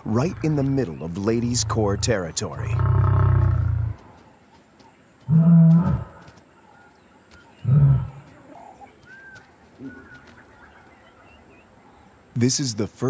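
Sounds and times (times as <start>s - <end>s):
lion moaning grunts: 0.0s - 4.0s, 7.6s - 8.8s.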